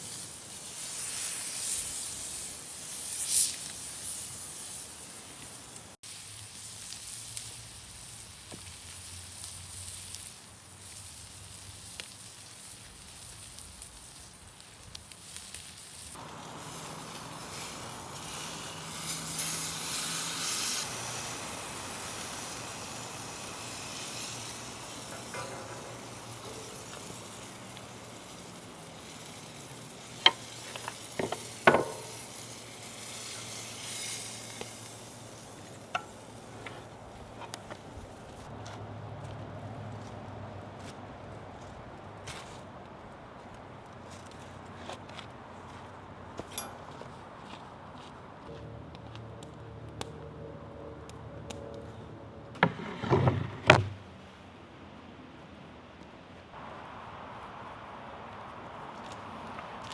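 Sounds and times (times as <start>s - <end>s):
food sizzling on cast iron: 0.0s - 38.5s.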